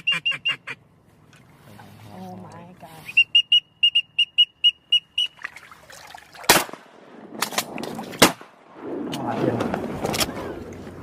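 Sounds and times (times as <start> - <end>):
high whistled peeps: 0.0 - 0.8, 3.0 - 5.5
faint splashy watery noise: 5.3 - 6.9
sharp cracks: 6.4 - 10.4.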